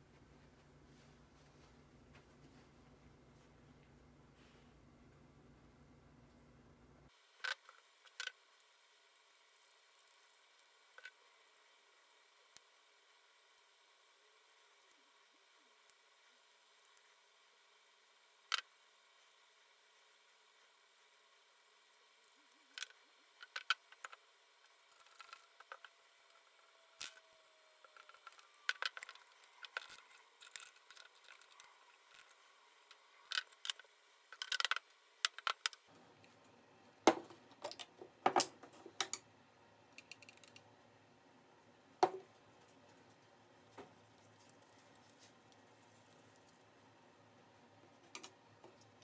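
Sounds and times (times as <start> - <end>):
small hard objects clicking: 27.9 - 32.4.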